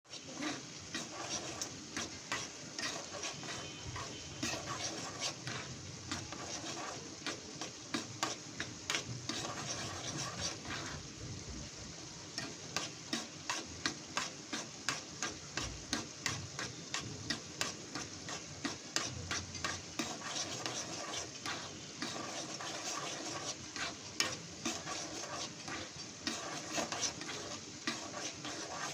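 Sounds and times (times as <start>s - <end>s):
spatula scraping a pan: 0.1s - 11.1s, 12.3s - 28.9s
food sizzling in a pan: 0.1s - 28.9s.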